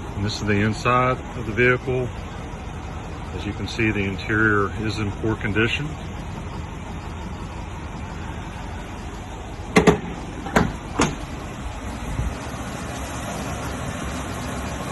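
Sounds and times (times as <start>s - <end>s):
pickup engine running: 0.0s - 14.9s
sharp knocks: 9.7s - 11.2s.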